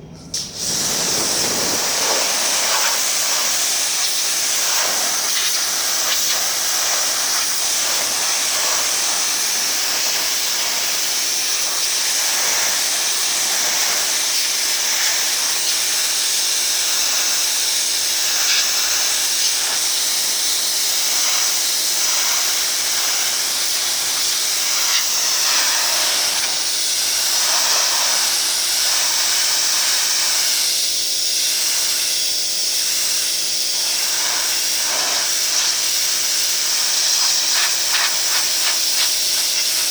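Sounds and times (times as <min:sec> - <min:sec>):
low even hum: 0:00.0 - 0:02.8
pressure washer water jet hissing: 0:00.3 - 0:39.9.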